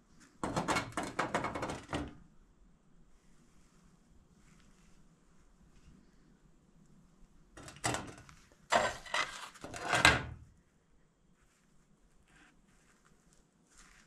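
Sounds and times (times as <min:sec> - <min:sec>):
scraping and knocking: 0:00.4 - 0:02.2, 0:07.6 - 0:10.4.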